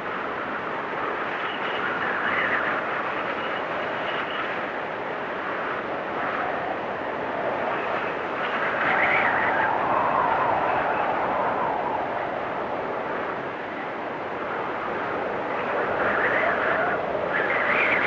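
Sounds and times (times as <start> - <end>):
blizzard wind whistling: 0.0 - 18.0.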